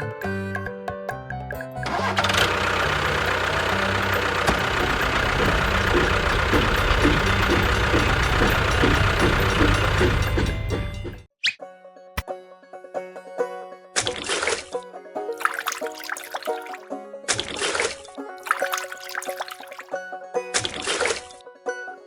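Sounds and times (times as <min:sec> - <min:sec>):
music: 0:00.0 - 0:03.2, 0:03.8 - 0:15.4, 0:16.7 - 0:18.6, 0:19.9 - 0:22.0
engine knocking: 0:01.8 - 0:11.3.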